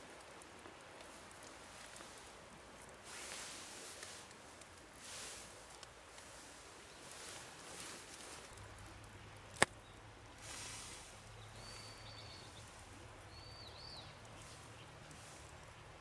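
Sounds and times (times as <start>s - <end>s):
faint fire hiss: 0.0s - 16.0s
campfire wood pop: 8.8s - 10.0s.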